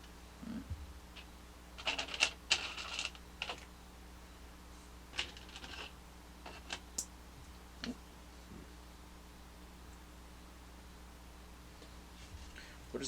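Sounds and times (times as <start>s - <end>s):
plastic pieces clicking and rattling: 1.8s - 3.7s, 5.1s - 5.9s, 6.5s - 6.8s.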